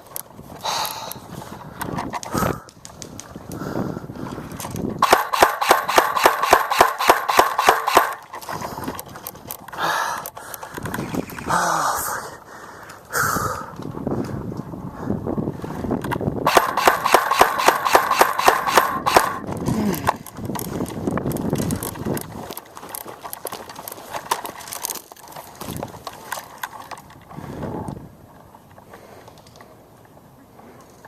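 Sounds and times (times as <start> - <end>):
paintball marker shots: 5.0 - 8.3, 16.5 - 19.5
faint clicks: 28.6 - 31.0.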